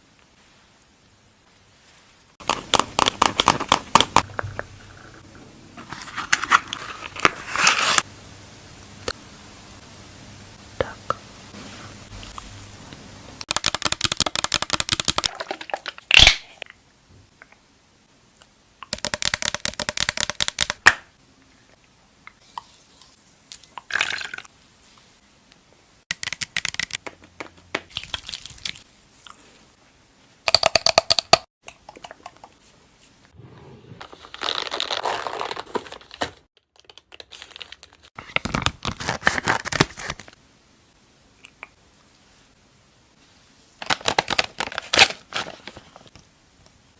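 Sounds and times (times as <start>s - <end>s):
makeup products crackling and tapping: 2.4s - 4.8s, 13.4s - 16.1s, 18.8s - 21.0s, 26.1s - 28.0s.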